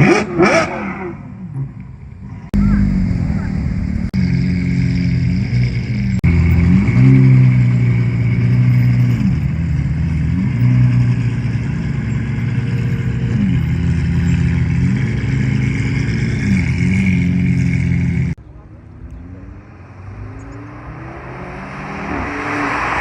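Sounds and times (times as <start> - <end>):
car engine revving: 2.5 - 18.4.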